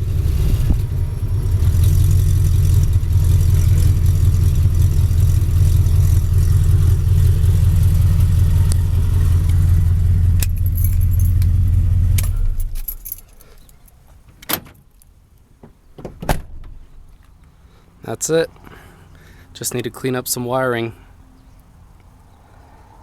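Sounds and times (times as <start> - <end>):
truck engine idling: 0.0 - 13.3.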